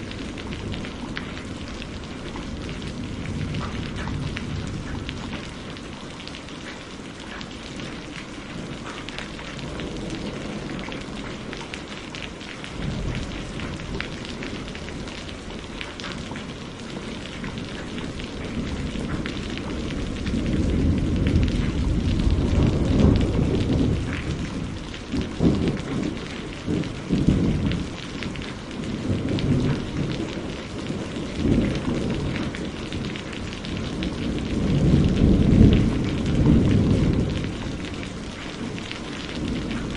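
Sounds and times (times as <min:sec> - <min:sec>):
rolling thunder rumble: 0:00.0 - 0:06.5, 0:07.6 - 0:39.9
raindrops ticking: 0:00.0 - 0:39.9
steady rain falling: 0:00.0 - 0:39.9.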